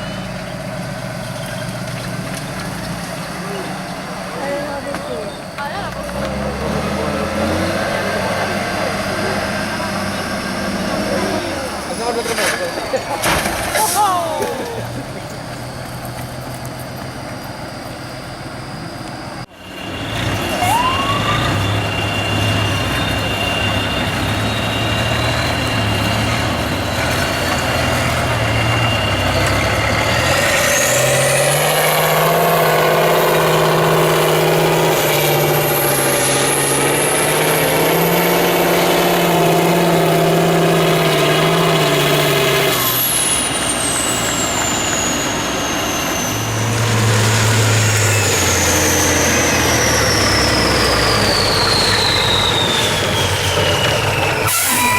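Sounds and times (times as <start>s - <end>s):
diesel truck engine revving: 0.0s - 54.9s
high whistle sweeping: 17.1s - 40.4s, 42.4s - 54.9s.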